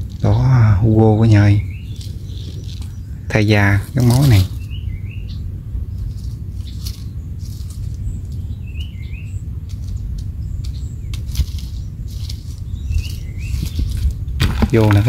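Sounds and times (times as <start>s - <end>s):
small bird chirping: 0.0s - 15.0s
steady low rumble: 0.0s - 15.0s
faint clicks and rustles: 1.7s - 3.1s, 5.9s - 15.0s.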